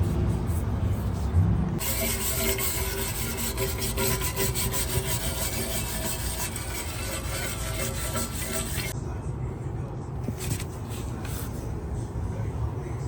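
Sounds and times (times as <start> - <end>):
brush scrubbing a part: 1.8 - 9.0.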